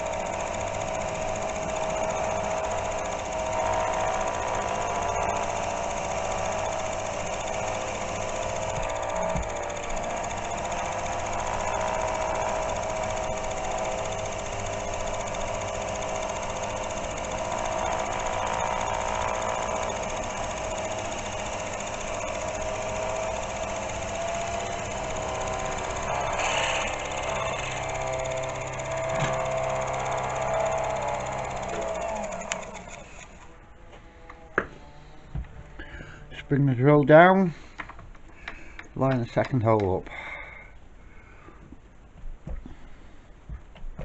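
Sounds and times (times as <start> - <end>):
drill boring through steel: 0.0 - 33.5.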